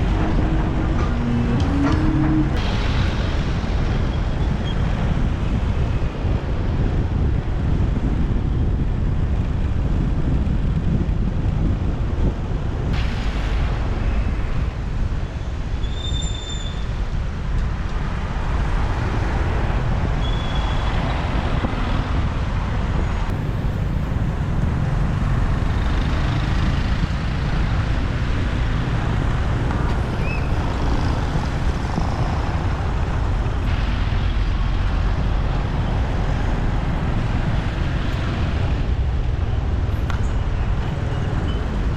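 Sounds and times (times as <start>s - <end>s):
traffic: 0.0s - 41.9s
wind on microphone: 0.0s - 41.9s.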